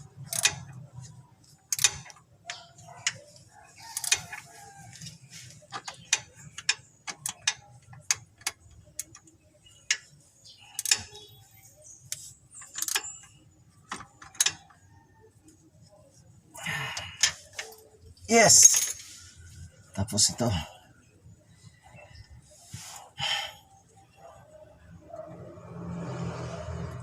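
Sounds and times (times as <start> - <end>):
metal tools clicking and knocking: 0.2 - 4.5, 5.6 - 11.3, 12.5 - 14.8.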